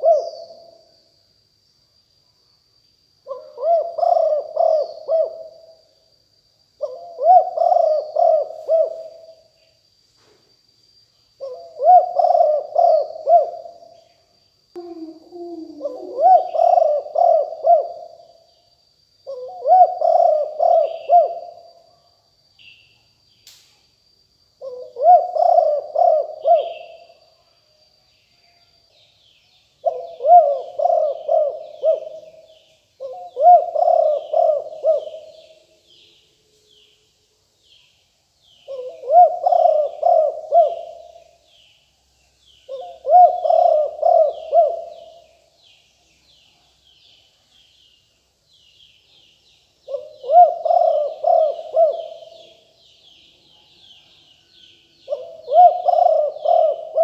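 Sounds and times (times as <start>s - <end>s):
dove cooing: 0.0s - 0.8s, 3.3s - 5.8s, 6.8s - 9.4s, 11.4s - 13.8s, 14.8s - 18.3s, 19.2s - 21.7s, 24.6s - 27.1s, 29.8s - 35.6s, 38.7s - 41.3s, 42.7s - 45.4s, 49.9s - 52.7s, 55.1s - 57.0s
faint high whine: 0.0s - 57.0s.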